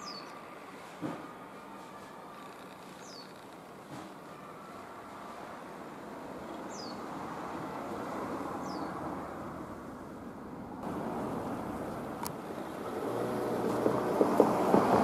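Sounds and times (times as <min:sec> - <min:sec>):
vehicle rumble: 0:05.7 - 0:15.0.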